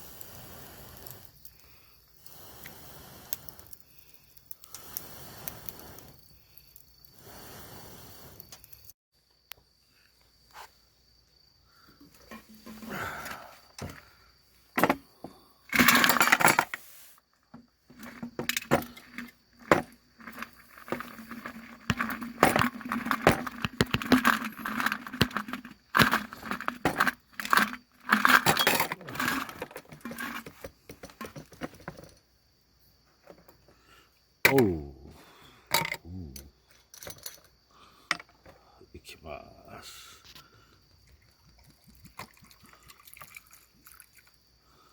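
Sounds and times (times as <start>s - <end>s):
rustling noise: 17.9s - 32.0s.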